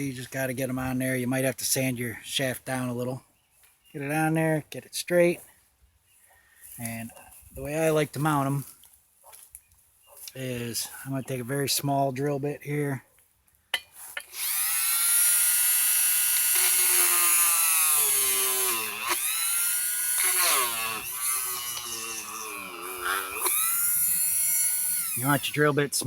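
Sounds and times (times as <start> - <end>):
electric drill whining: 14.3 - 25.6.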